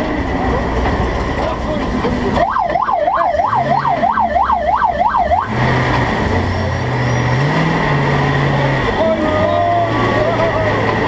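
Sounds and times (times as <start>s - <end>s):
monster truck engine running: 0.0s - 11.0s
warbling siren: 2.4s - 5.6s.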